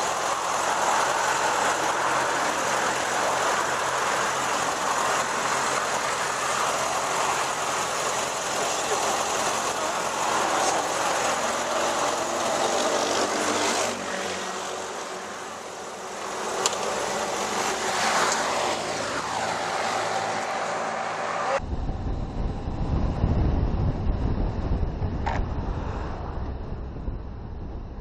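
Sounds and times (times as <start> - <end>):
vehicle passing by: 0.0 - 21.6
road traffic engines: 0.0 - 22.3
wind rumble on microphone: 21.6 - 28.0.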